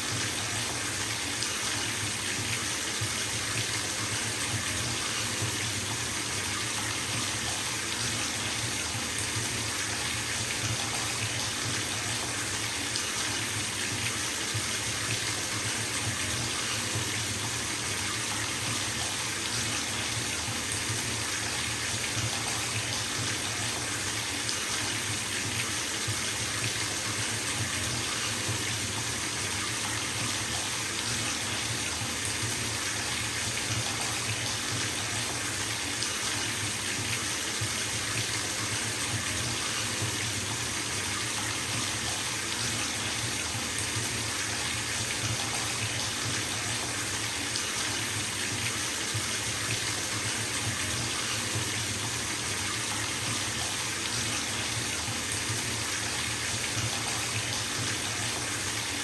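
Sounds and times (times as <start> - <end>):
tap water splashing into bathtub: 0.0 - 59.0.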